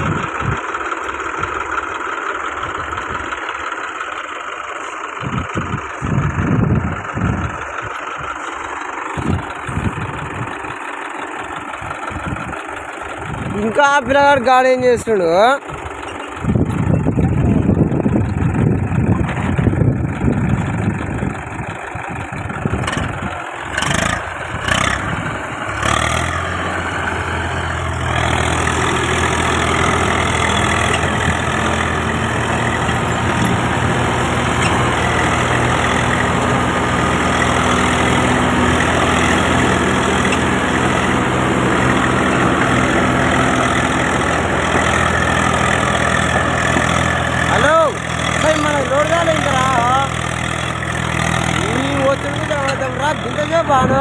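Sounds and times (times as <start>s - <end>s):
engine knocks: 0.0s - 14.5s, 15.1s - 54.0s
tractor diesel engine running: 0.0s - 54.0s.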